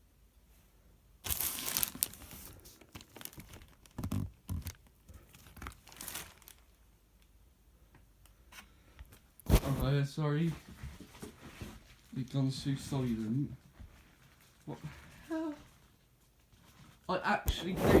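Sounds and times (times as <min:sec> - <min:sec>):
packaging tearing and crinkling: 0:01.2 - 0:06.7.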